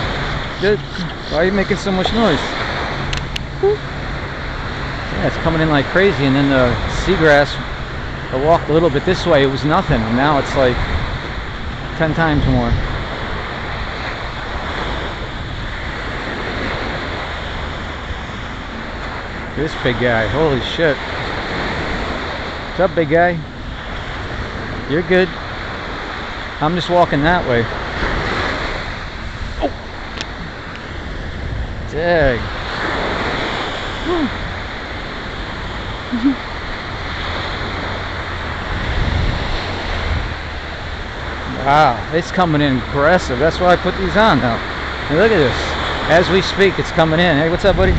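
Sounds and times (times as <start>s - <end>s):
ocean surf washing ashore: 0.0s - 47.9s
waves breaking on beach: 0.0s - 47.9s
wind rumbling on microphone: 0.0s - 47.9s
brief pitched sound: 3.6s - 3.8s.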